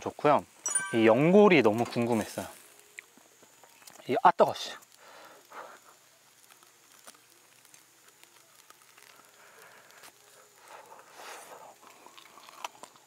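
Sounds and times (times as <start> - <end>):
person chewing crunchy cartilage: 6.5 - 13.0.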